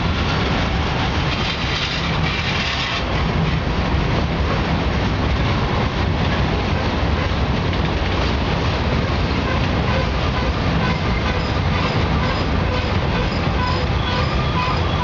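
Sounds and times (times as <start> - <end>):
train wheels rumbling on rails: 0.0 - 15.0
high wheel squeals: 10.8 - 15.0.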